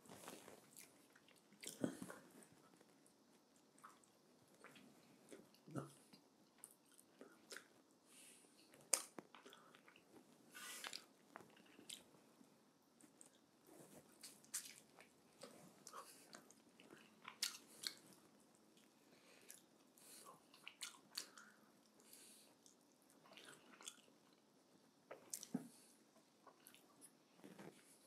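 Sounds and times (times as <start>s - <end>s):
person chewing meat: 14.1s - 24.1s.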